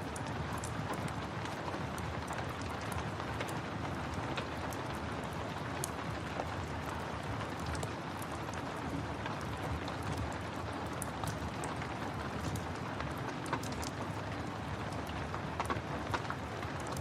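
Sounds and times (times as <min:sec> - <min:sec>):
steady rain: 0:00.0 - 0:17.0
wood fire crackling and popping: 0:00.1 - 0:17.0.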